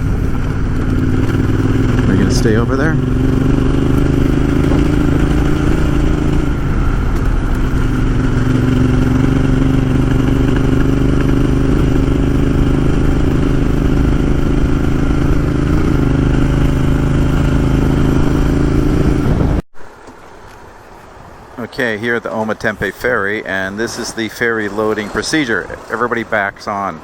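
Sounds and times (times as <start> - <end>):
motorcycle engine running: 0.0 - 19.6.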